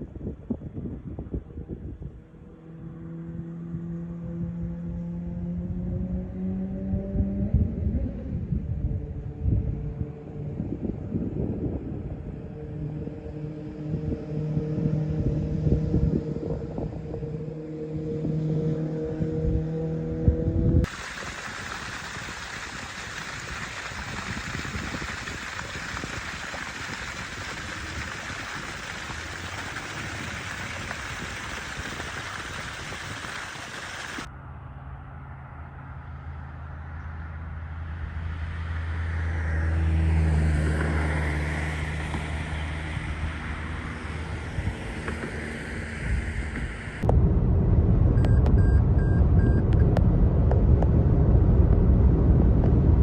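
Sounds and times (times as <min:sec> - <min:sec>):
wind rumble on microphone: 0:00.0 - 0:34.3, 0:37.9 - 0:53.0
passing motor hum: 0:16.0 - 0:36.4
steady rushing noise: 0:20.8 - 0:34.3, 0:42.8 - 0:53.0.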